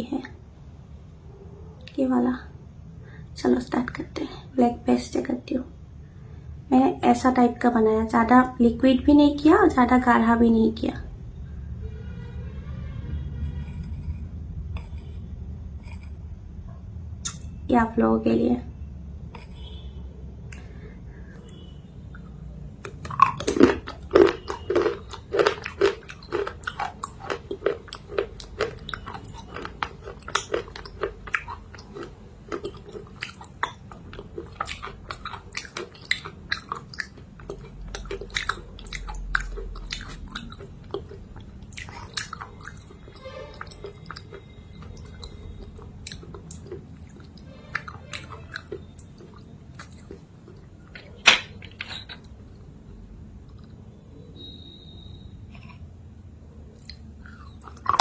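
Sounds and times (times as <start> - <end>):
person chewing sticky paste: 13.4 - 16.5, 17.2 - 17.6, 19.2 - 52.7, 53.4 - 56.0, 56.6 - 58.0.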